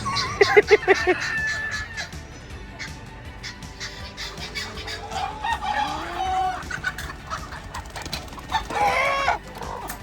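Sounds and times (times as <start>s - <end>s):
rooster crowing: 0.0s - 2.2s
chickens clucking: 0.0s - 10.0s.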